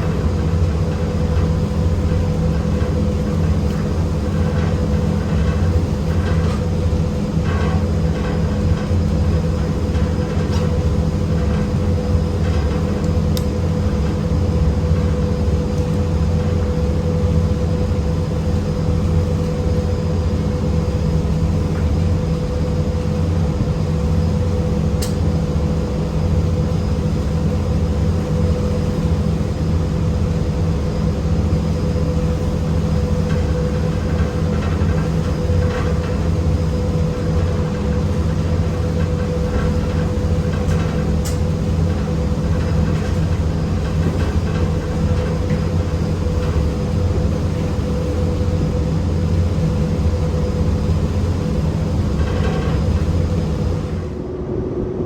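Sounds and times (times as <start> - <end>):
low mechanical drone: 0.0 - 55.0.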